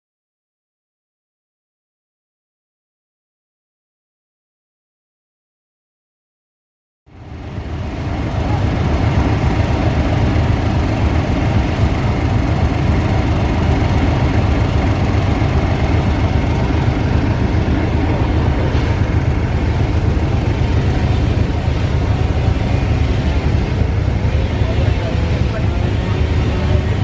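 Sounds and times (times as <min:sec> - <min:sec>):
diesel locomotive engine drone: 0:07.1 - 0:27.0.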